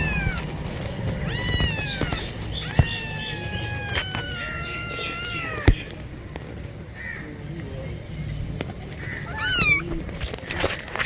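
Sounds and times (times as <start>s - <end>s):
cat meowing: 0.0s - 0.6s, 1.2s - 5.9s, 9.2s - 10.0s.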